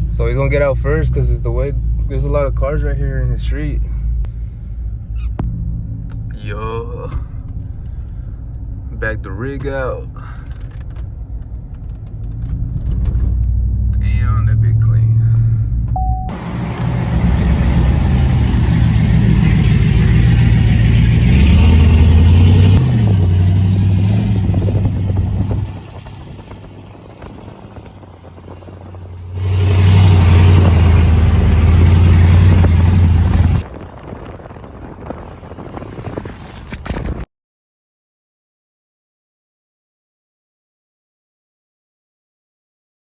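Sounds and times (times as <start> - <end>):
truck engine running: 0.0 - 37.2.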